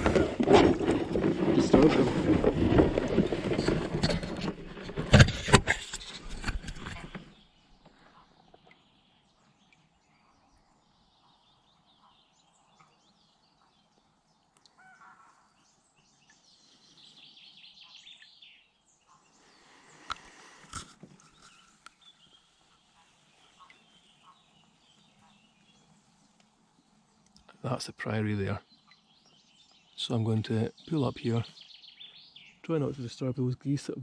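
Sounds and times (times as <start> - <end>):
faint bird calls: 6.8 - 34.0
high twittering bird song: 7.0 - 20.1, 21.2 - 34.0.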